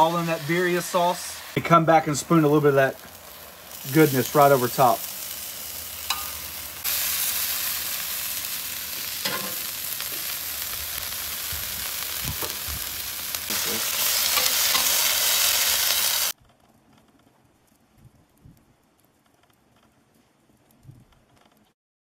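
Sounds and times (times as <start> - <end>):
food sizzling on a griddle: 0.0 - 16.4
metal spatula taps and scrapes: 6.1 - 6.4, 9.2 - 9.6.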